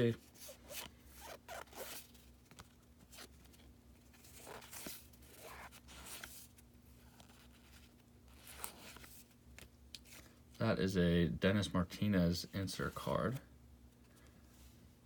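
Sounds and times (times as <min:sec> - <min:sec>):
low steady hum: 0:00.0 - 0:15.0
trading cards rustling and sliding: 0:00.1 - 0:10.4.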